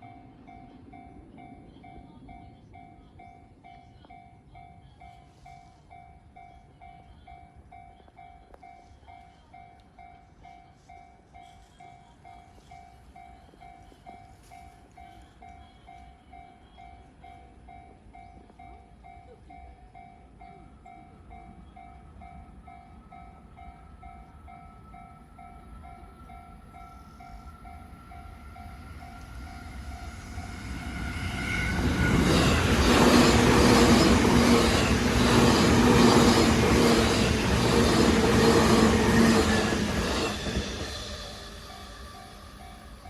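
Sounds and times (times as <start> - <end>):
electric train whine: 20.3 - 43.0
train passing loudly: 20.8 - 43.0.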